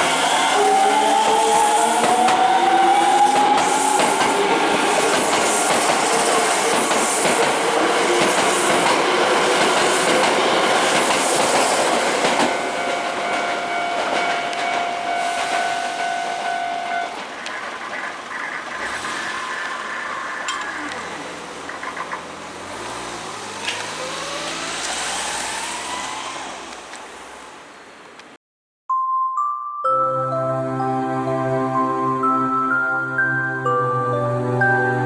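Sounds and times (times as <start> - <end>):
train wheels running on rails: 0.0 - 27.6
traction motor whine: 18.8 - 27.4.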